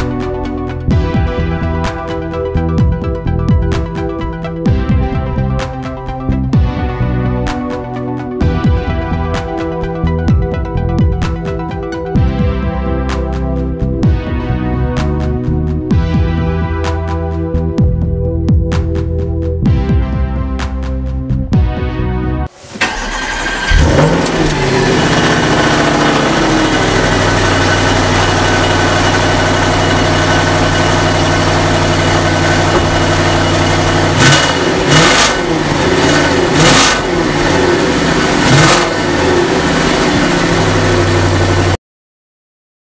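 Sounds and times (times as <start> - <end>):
exhaust crackles: 22.7 - 41.8
car engine idling and revving: 22.8 - 41.8.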